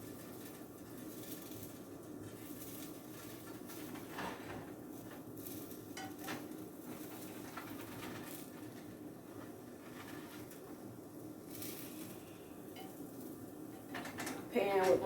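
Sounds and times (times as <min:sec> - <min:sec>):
faint steady background noise: 0:00.0 - 0:15.0
utensil scraping a frying pan: 0:00.3 - 0:10.8.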